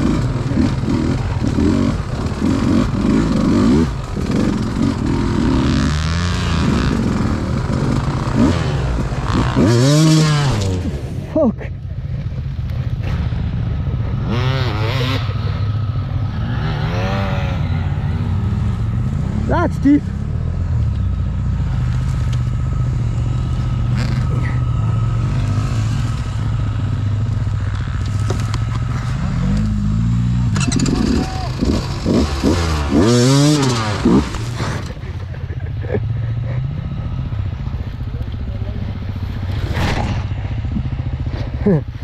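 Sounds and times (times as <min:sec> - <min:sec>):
motorcycle throttle blips: 0:11.8 - 0:42.0
motorcycle engine idling: 0:33.3 - 0:39.5, 0:40.3 - 0:42.0.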